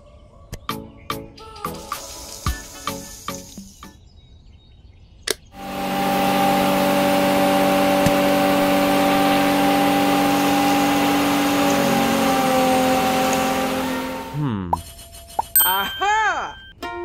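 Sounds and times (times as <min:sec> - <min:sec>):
small electric motor whining: 0:05.6 - 0:14.4.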